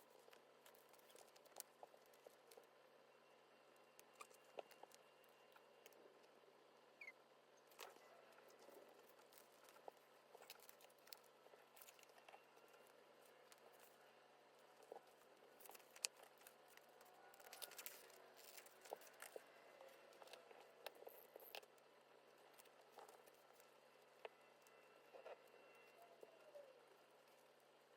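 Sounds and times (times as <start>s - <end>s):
paper rustling and crinkling: 14.8s - 21.7s.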